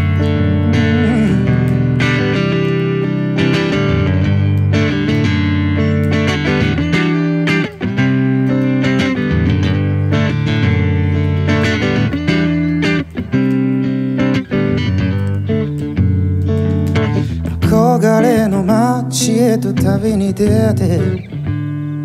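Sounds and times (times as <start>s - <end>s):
bass line: 0.0s - 13.3s
strummed guitar chords: 0.0s - 22.0s.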